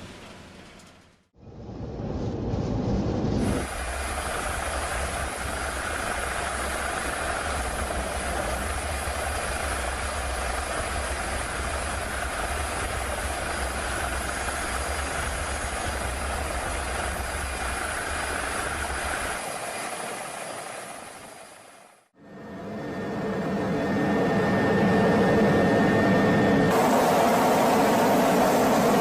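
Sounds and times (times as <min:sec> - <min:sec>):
deep rumble: 0:01.4 - 0:06.0
storm wind roaring: 0:01.4 - 0:19.4.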